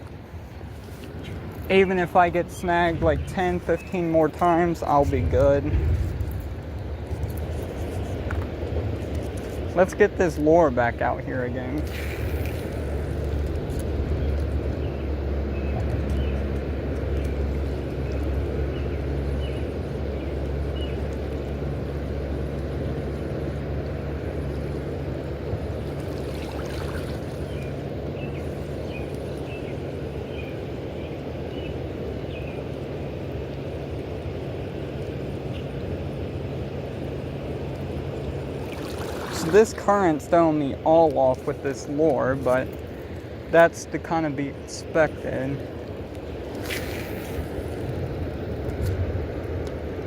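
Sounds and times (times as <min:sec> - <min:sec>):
constant low hum: 0:00.0 - 0:50.0
river water rumbling: 0:00.0 - 0:50.0.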